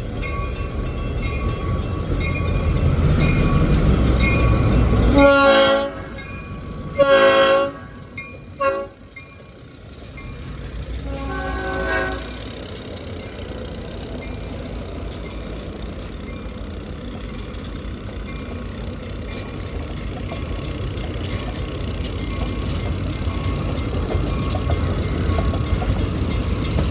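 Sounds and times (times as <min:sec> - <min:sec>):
train rumbling by: 0:00.0 - 0:26.9
locomotive air horn blasts: 0:05.1 - 0:06.2, 0:07.0 - 0:08.0, 0:08.6 - 0:09.0, 0:11.0 - 0:12.4.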